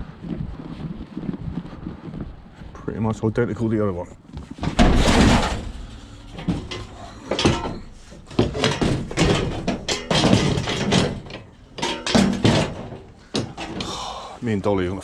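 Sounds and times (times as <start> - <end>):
scrap metal banging and clattering: 4.6 - 14.1.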